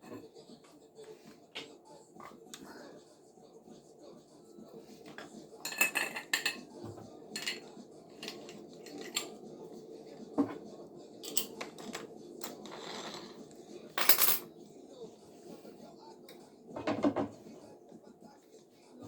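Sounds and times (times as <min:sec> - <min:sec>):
hard objects clinking and clattering: 0:05.1 - 0:09.4, 0:11.2 - 0:14.5.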